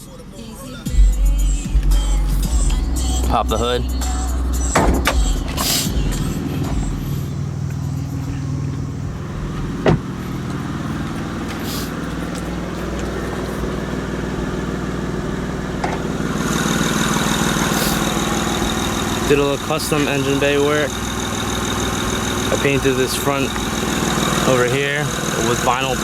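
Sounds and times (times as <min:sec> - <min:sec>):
car engine idling: 0:00.0 - 0:26.0
hood latch clunk: 0:04.7 - 0:05.9, 0:08.4 - 0:10.6, 0:15.8 - 0:16.1.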